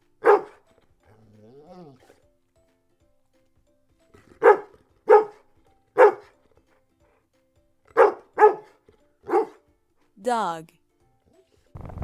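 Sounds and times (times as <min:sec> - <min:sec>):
dog barking: 0:00.2 - 0:00.6, 0:04.4 - 0:05.4, 0:06.0 - 0:06.4, 0:07.9 - 0:09.6.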